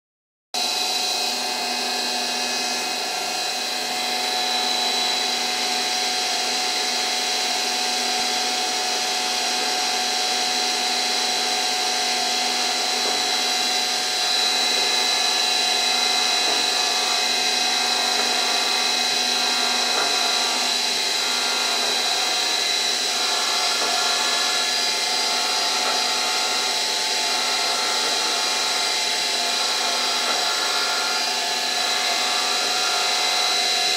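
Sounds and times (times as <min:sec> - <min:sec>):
mechanical hum: 0:00.6 - 0:33.9
milling spindle whine: 0:00.6 - 0:33.9.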